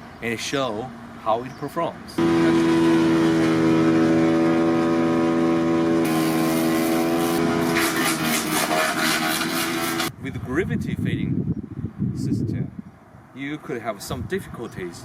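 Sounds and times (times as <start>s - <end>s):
wood chipper engine hum: 2.2s - 10.1s
wood being chipped crackle: 6.1s - 10.1s.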